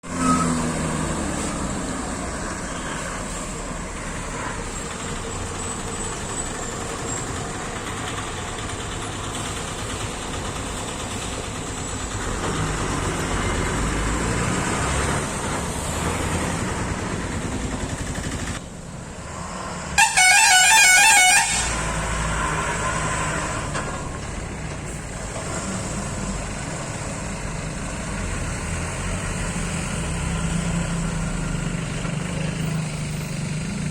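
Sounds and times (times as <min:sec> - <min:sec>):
heavy vehicle engines climbing: 0:00.0 - 0:33.9
road noise: 0:00.0 - 0:33.9
vehicle horn: 0:20.0 - 0:22.0.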